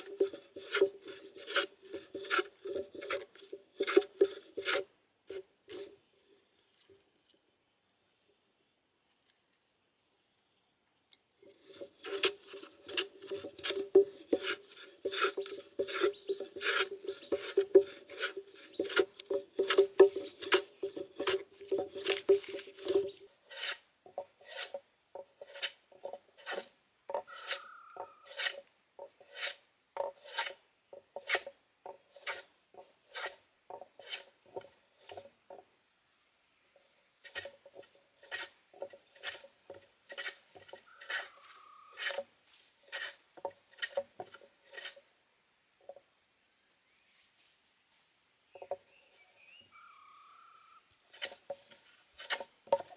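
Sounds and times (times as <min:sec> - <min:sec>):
hand tool rasping: 0:00.0 - 0:04.8, 0:11.5 - 0:31.5, 0:32.1 - 0:35.3, 0:37.2 - 0:45.0, 0:51.1 - 0:52.9.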